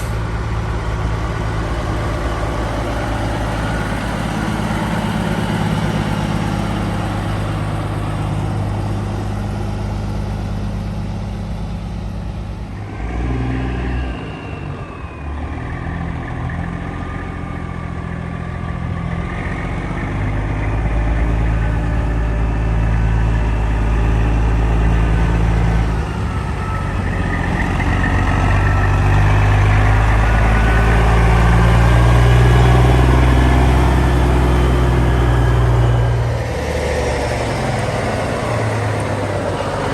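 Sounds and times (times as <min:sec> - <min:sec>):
diesel truck engines running: 0:00.0 - 0:39.9.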